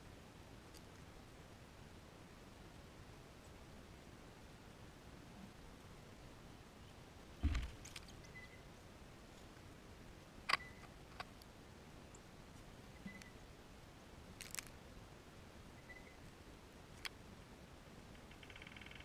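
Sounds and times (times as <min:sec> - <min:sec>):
faint steady hiss: 0:00.0 - 0:19.0
dull thump: 0:07.4 - 0:07.8.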